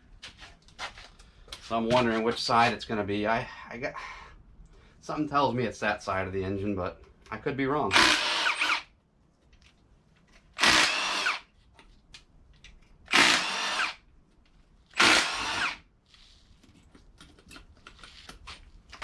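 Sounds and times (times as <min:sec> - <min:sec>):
cordless drill spinning bolts: 0:07.9 - 0:08.9, 0:10.6 - 0:11.4, 0:13.1 - 0:14.0, 0:14.9 - 0:15.8.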